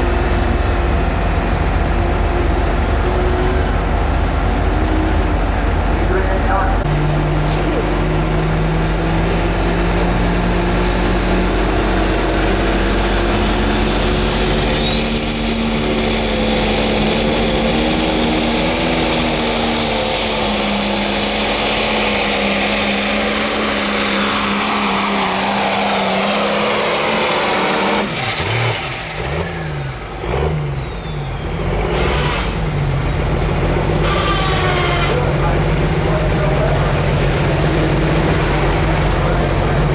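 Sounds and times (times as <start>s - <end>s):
diesel engine running at full power: 0.0s - 39.9s
high turbo whistle: 6.8s - 33.0s, 33.8s - 35.3s.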